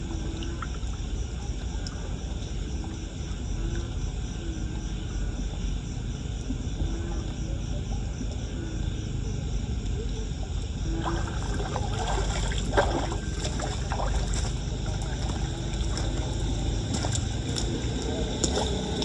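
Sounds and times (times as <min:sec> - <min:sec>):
floodwater sloshing and splashing: 0:00.0 - 0:04.2, 0:10.2 - 0:19.0
low rush of water: 0:10.9 - 0:19.0
sharp splash or knock: 0:11.0 - 0:16.1.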